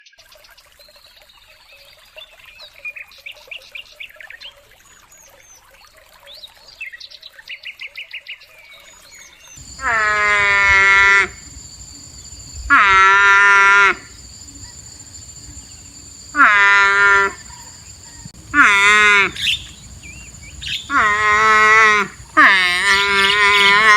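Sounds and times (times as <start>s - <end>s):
animal long loud calls: 9.6s - 23.9s
birds chirping: 9.6s - 23.9s.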